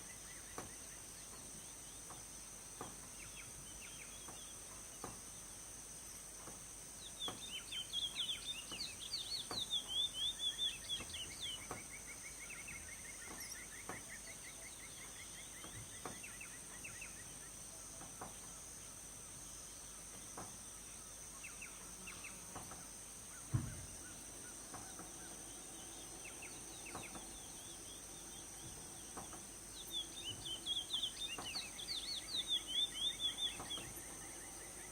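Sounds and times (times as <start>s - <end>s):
high insect drone: 0.0s - 34.9s
bird singing whistled notes: 7.1s - 17.5s, 23.4s - 34.9s
dull thump: 23.4s - 25.4s.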